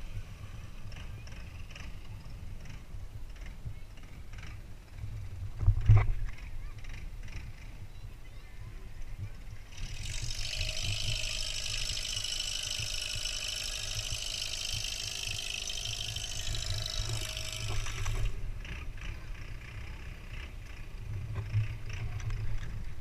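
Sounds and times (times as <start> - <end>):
boat engine rumble: 0.0 - 23.0
high-pitched whine: 9.6 - 19.4.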